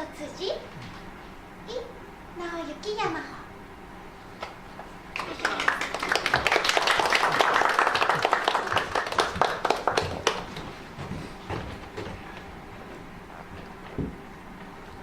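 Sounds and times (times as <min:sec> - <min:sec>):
audience applause: 0:05.1 - 0:10.8.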